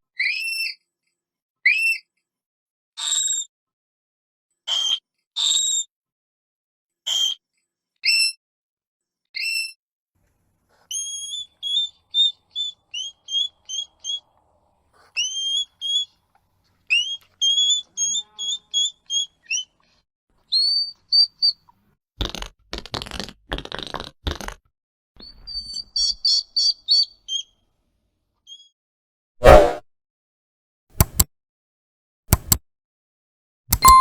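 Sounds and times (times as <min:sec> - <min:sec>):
hedgehog whistling peeps: 0:10.9 - 0:14.3, 0:15.2 - 0:16.1, 0:16.9 - 0:19.7, 0:25.2 - 0:27.5.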